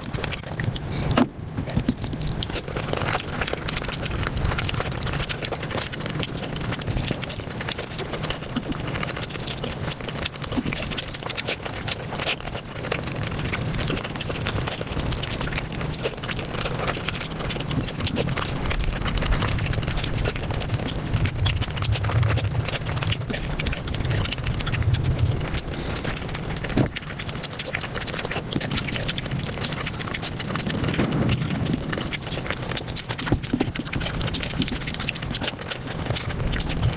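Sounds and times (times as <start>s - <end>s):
person chewing and crunching: 0.0s - 36.9s.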